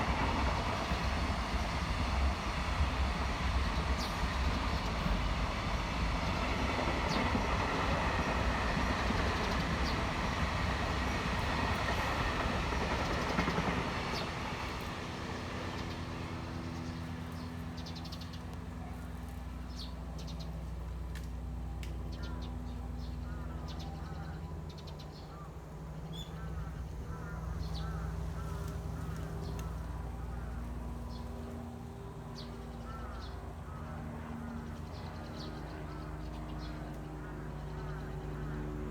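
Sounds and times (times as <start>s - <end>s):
small birds chirping: 21.8s - 31.6s.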